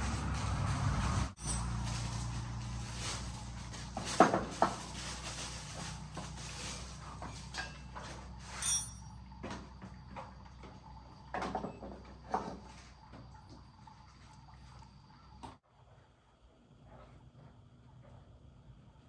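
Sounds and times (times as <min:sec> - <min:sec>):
brief squeak: 0:08.5 - 0:09.1.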